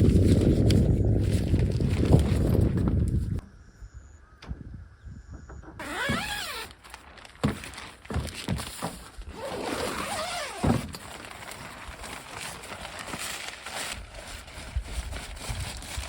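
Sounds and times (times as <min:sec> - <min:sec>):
tent fabric rustling: 0:00.0 - 0:03.0, 0:05.8 - 0:16.0
dull thuds: 0:05.3 - 0:09.4, 0:10.3 - 0:11.4.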